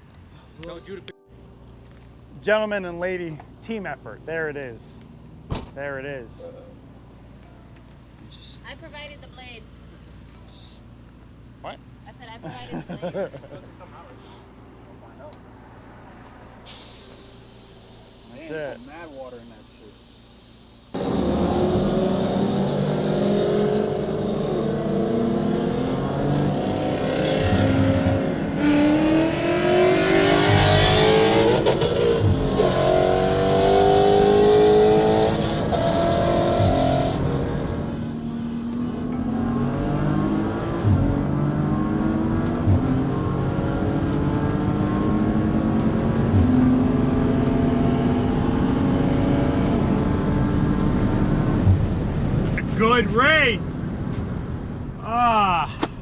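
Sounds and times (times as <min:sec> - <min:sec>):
car engine at full throttle: 0:15.3 - 0:55.0.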